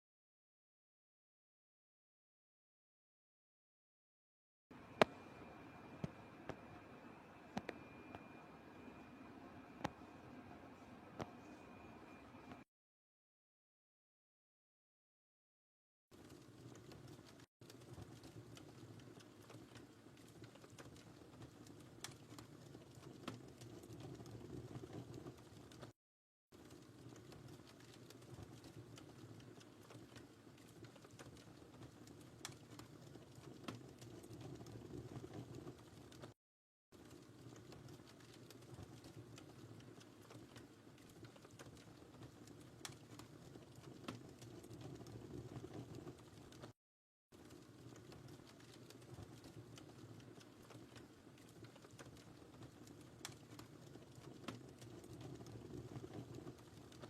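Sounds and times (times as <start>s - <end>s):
wood fire crackling and popping: 16.2s - 25.9s, 26.6s - 36.4s, 37.0s - 46.8s, 47.4s - 57.0s.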